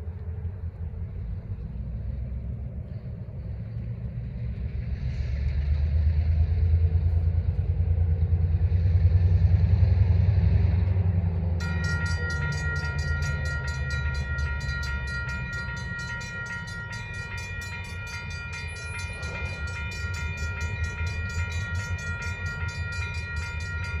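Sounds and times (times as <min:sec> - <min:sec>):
diesel locomotives rumbling: 0:00.0 - 0:24.0
locomotive horn: 0:11.6 - 0:24.0.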